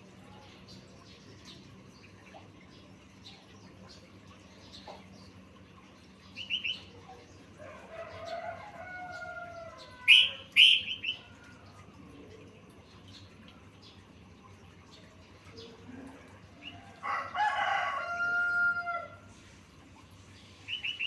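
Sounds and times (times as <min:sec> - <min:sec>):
bird warbling: 0:09.8 - 0:11.3
bird chirps: 0:10.1 - 0:11.3, 0:20.7 - 0:21.0.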